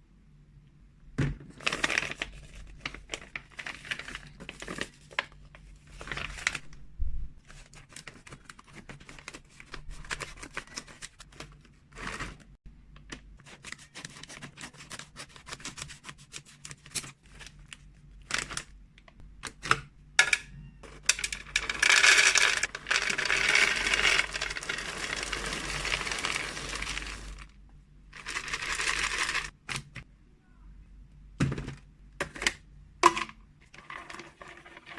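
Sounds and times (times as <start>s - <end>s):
plastic packaging crinkling: 1.5s - 6.7s, 20.8s - 27.5s, 28.1s - 30.0s
rustling rattle of treats: 20.8s - 27.5s, 28.1s - 29.6s.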